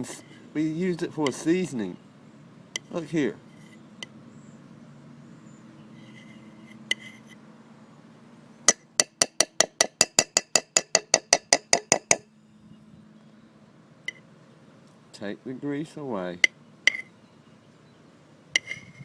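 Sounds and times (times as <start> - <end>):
utensil tapping a bowl: 8.7 - 12.2.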